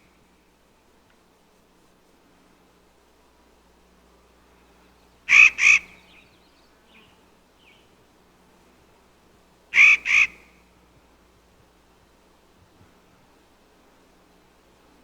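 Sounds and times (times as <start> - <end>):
animal calling harshly: 5.3 - 6.0, 9.8 - 10.4.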